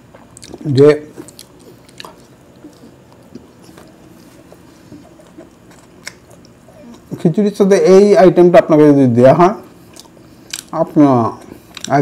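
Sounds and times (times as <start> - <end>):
chewing with wet mouth clicks: 0.0 - 7.2, 9.9 - 10.8, 11.4 - 12.0.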